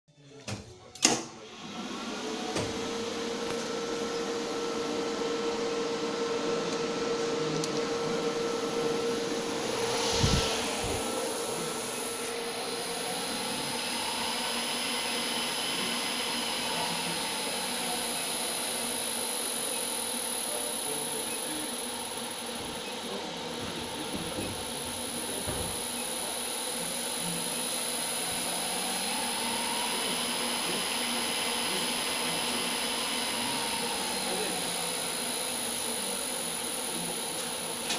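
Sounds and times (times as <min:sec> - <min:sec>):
electric motor whine: 0:01.6 - 0:37.9
steady high-pitched tones: 0:07.0 - 0:22.4, 0:25.1 - 0:37.4.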